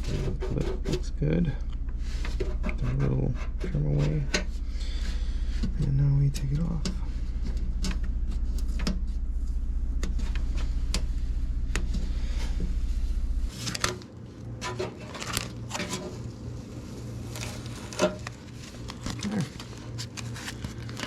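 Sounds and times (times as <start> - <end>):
machine humming: 0.0 - 14.6.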